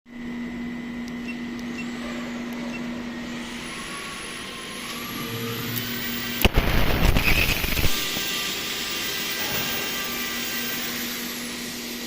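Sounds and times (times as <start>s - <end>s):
plasma cutting machine humming: 3.0s - 12.0s.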